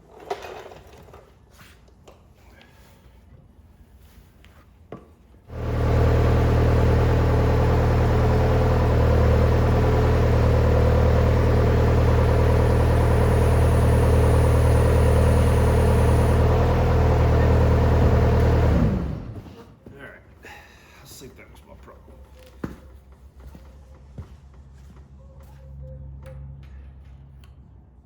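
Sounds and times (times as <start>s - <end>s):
engine running with deep hum: 5.5s - 19.6s.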